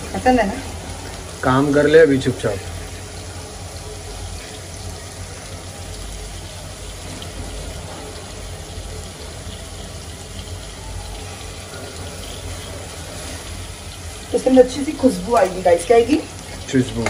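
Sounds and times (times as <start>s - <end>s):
masala cooking hiss: 0.0s - 17.0s.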